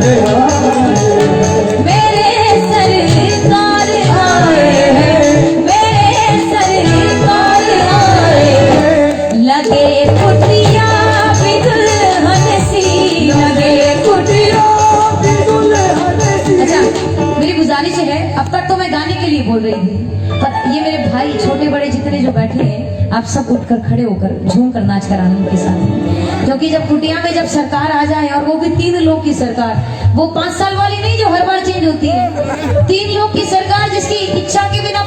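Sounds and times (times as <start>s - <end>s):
jingling percussion: 0.0s - 18.2s
drums: 0.0s - 19.4s
devotional song melody: 0.0s - 23.1s, 25.3s - 27.2s.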